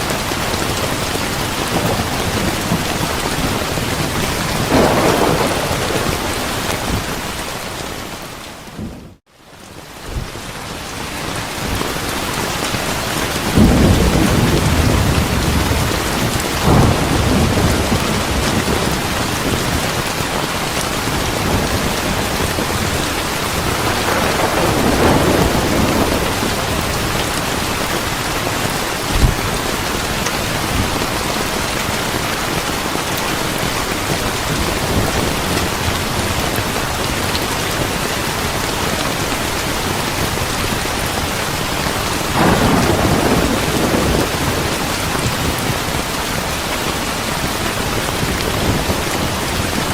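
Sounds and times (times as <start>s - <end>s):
heavy rain: 0.0s - 49.9s
thunder rolling: 0.6s - 7.5s, 13.2s - 32.2s, 42.3s - 46.0s.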